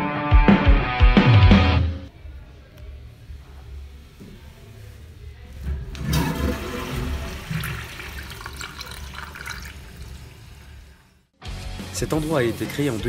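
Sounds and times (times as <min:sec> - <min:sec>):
urinal flushing: 0:05.5 - 0:11.4.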